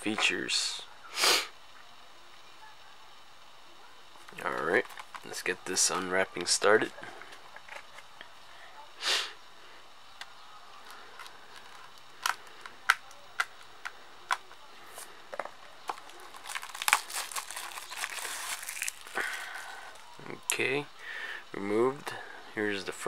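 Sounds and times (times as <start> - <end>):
plastic shrink wrap crinkling: 15.9 - 20.2.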